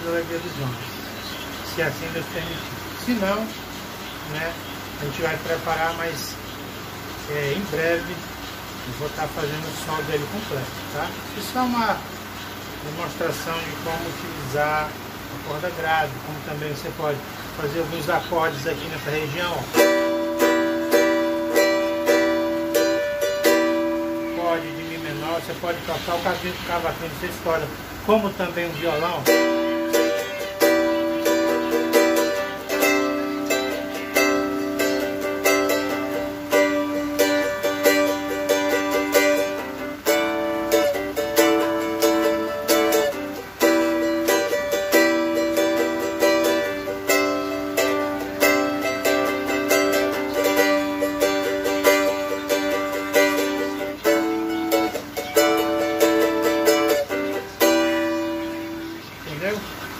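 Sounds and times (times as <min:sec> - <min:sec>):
plucked small guitar: 0:19.2 - 0:27.6, 0:28.5 - 0:59.1.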